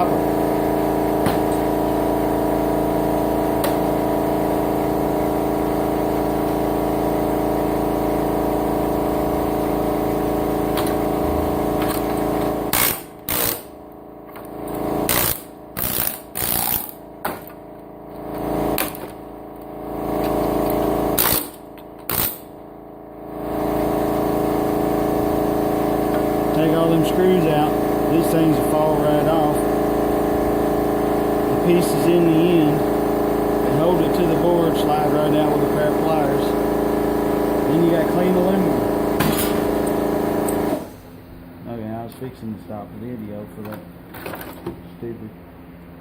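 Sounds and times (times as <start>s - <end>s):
pneumatic air chisel hammering: 1.0s - 2.4s, 3.0s - 5.3s, 8.9s - 22.6s, 23.4s - 41.2s.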